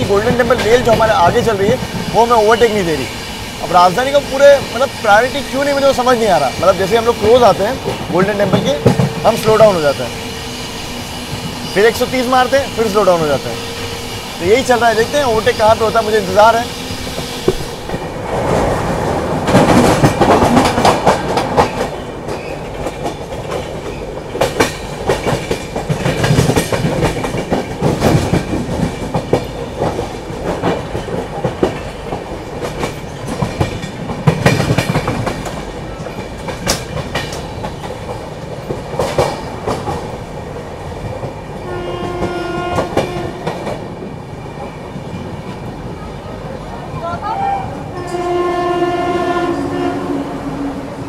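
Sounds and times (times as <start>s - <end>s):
wheels clicking over rail joints: 0.0s - 3.1s, 3.8s - 10.2s, 19.4s - 45.8s
train wheel-and-track rumble: 0.0s - 51.0s
train horn: 41.6s - 43.6s, 47.3s - 51.0s.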